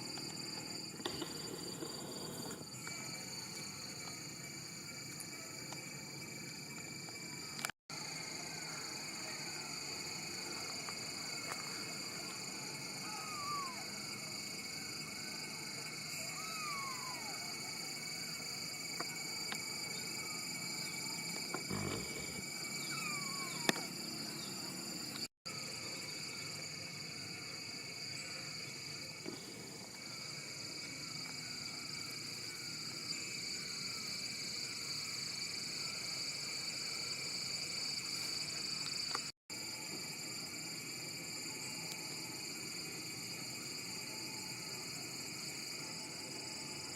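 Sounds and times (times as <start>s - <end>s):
insect chorus: 0.0s - 46.9s
faint falling calls: 21.6s - 23.9s.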